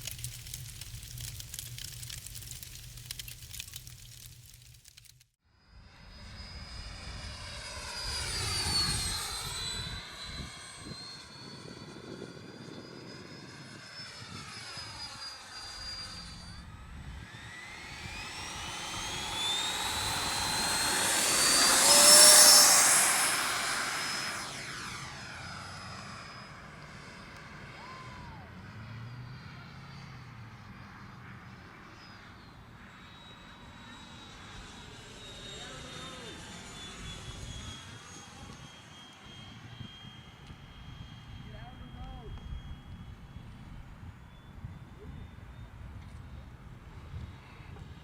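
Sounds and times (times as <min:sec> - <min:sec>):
model jet fan whine: 0:05.6 - 0:48.0.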